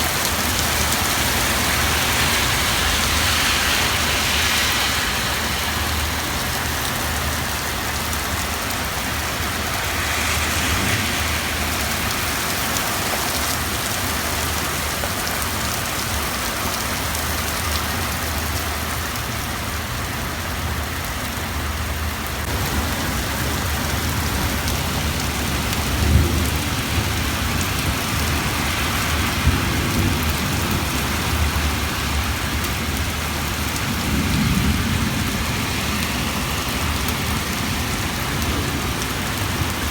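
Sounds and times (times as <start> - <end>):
heavy rain pouring: 0.0 - 39.9
rumbles of thunder: 22.5 - 39.9.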